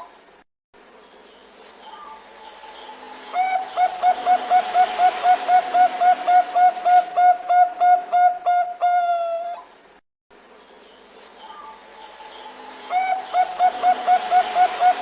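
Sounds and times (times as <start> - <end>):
dove cooing: 3.3 - 9.7, 12.9 - 15.0.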